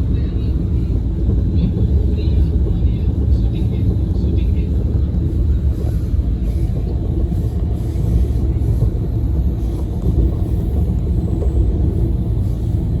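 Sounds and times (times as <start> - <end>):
train rumbling in tunnel: 0.0 - 13.0.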